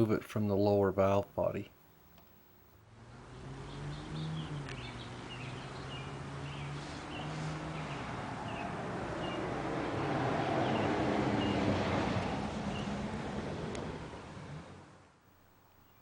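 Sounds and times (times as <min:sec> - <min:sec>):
passing vehicles rushing: 0:02.8 - 0:15.1
low engine hum: 0:02.8 - 0:16.0
small bird chirping: 0:03.6 - 0:09.5, 0:15.4 - 0:16.0.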